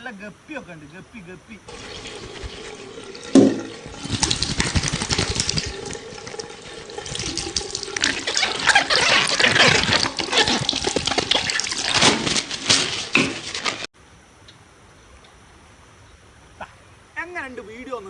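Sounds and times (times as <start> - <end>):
stream splashing and gurgling: 1.7 - 13.9.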